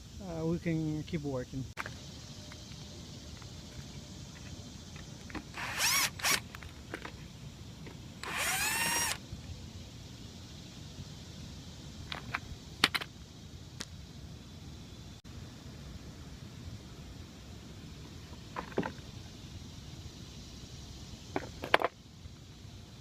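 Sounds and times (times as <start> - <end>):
cordless drill spinning: 5.4 - 6.7, 8.2 - 9.2.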